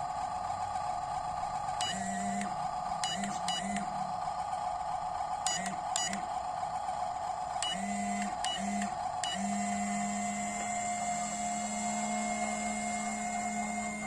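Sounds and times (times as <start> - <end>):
small electric motor whirring: 7.1 - 14.0.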